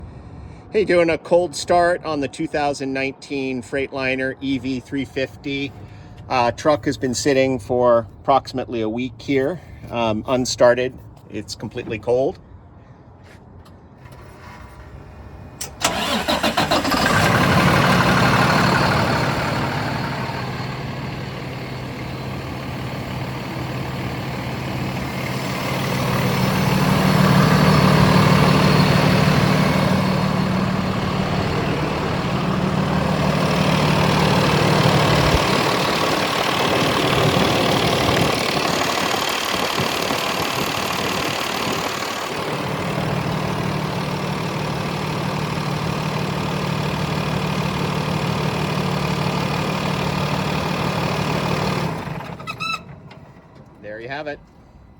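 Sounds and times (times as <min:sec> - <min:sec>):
truck engine idling: 0:13.6 - 0:54.9
truck engine cranking: 0:14.0 - 0:53.8.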